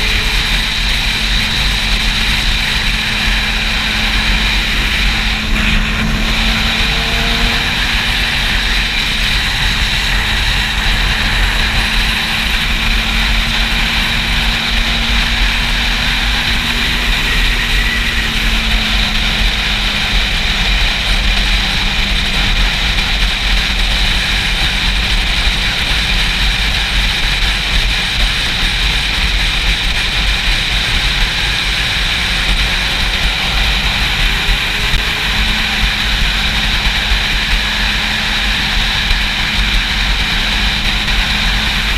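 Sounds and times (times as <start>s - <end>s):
motorcycle engine: 0.0s - 41.9s.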